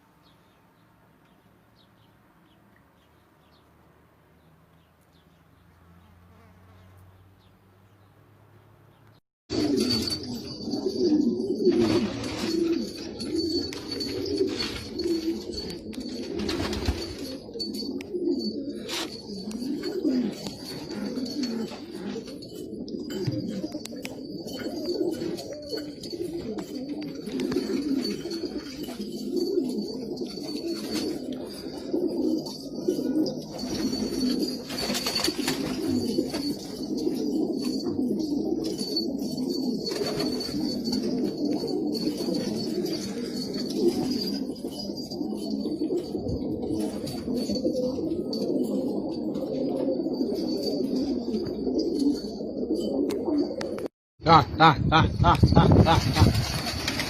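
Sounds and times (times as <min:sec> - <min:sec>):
pigeons cooing: 0:09.5 - 0:53.9.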